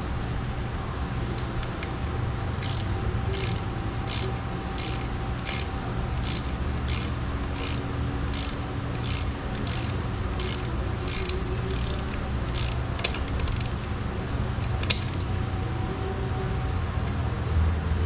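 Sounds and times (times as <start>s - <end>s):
steady low hum: 0.0s - 18.0s
socket ratchet clicking: 2.6s - 13.9s.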